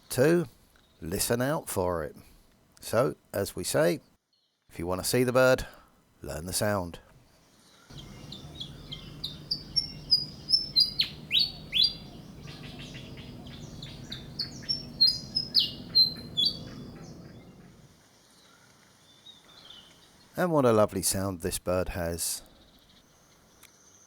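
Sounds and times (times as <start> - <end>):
bird singing squeaky whistles: 7.9 - 17.8
steady low hum: 7.9 - 17.9.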